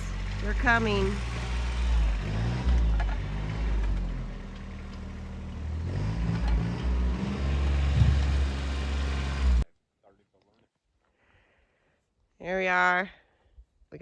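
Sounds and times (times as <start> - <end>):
tractor engine running: 0.0 - 9.6.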